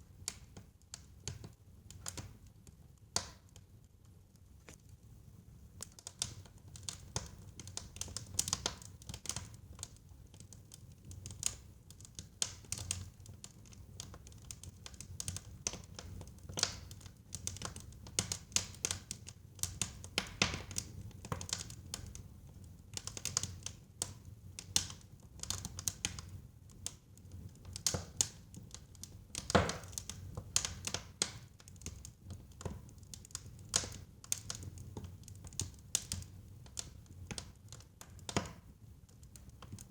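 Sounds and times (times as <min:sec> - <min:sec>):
wood fire popping and crackling: 0:00.2 - 0:39.9.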